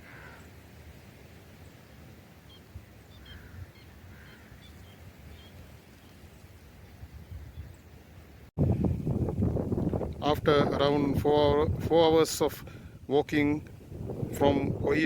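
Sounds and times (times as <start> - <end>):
soft lower bird calls: 0.0 - 0.6, 1.6 - 8.0
birds high chirps: 2.5 - 8.0.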